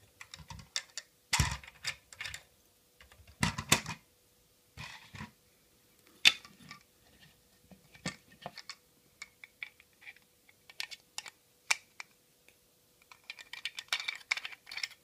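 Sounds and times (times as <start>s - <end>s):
plastic parts clicking: 0.2s - 2.4s, 8.0s - 12.1s, 13.0s - 15.0s.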